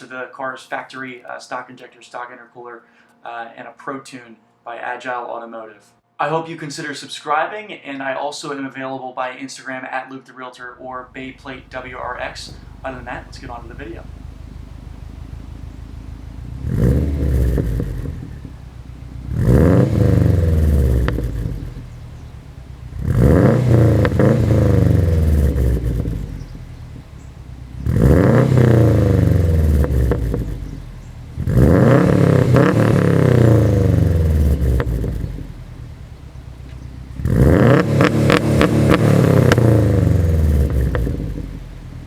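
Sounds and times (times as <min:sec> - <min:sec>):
car engine revving: 0:11.0 - 0:42.0.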